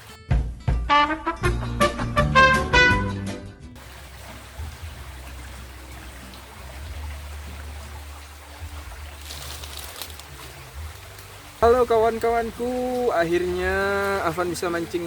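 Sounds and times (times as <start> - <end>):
music track: 0.0 - 3.8, 10.8 - 15.0
river water flowing: 3.8 - 15.0.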